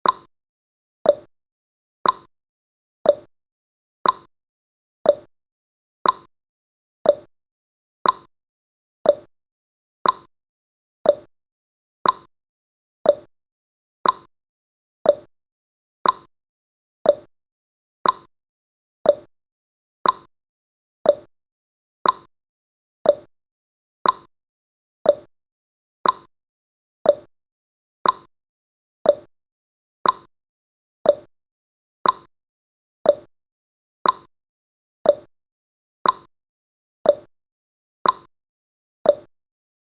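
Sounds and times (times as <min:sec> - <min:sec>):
clock ticking: 0:02.0 - 0:02.3, 0:04.0 - 0:04.3, 0:06.0 - 0:06.3, 0:08.0 - 0:08.3, 0:10.0 - 0:10.3, 0:12.0 - 0:12.3, 0:14.0 - 0:14.3, 0:16.0 - 0:16.3, 0:18.0 - 0:18.3, 0:20.0 - 0:20.3, 0:22.0 - 0:22.3, 0:23.1 - 0:23.3, 0:24.0 - 0:24.3, 0:26.0 - 0:26.3, 0:28.0 - 0:28.3, 0:29.1 - 0:29.3, 0:30.0 - 0:30.3, 0:31.1 - 0:31.3, 0:32.0 - 0:32.3, 0:33.1 - 0:33.3, 0:34.0 - 0:34.3, 0:35.1 - 0:35.3, 0:36.0 - 0:36.3, 0:38.0 - 0:38.3, 0:39.1 - 0:39.3.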